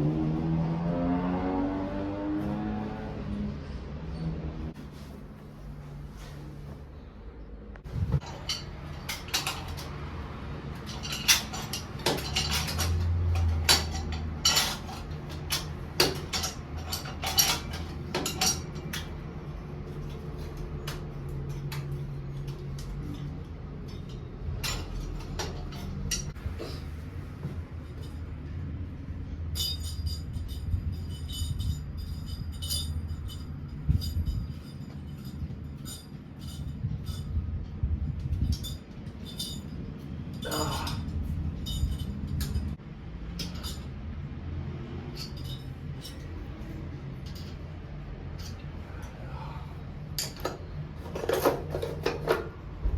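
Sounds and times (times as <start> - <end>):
hard objects clinking and knocking: 8.0 - 19.3, 50.1 - 52.9.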